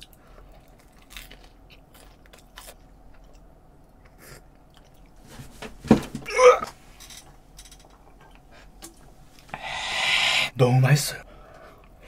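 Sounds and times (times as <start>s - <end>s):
chewing crusty bread: 0.0s - 5.2s
mouth sounds: 9.6s - 10.7s.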